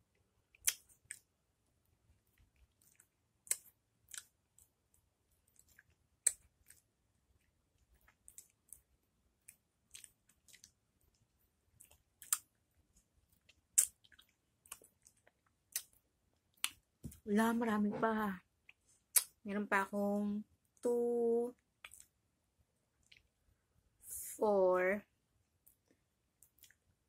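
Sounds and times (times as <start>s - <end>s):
person chewing lemon slices: 8.0s - 10.8s, 11.8s - 12.6s, 13.3s - 16.8s.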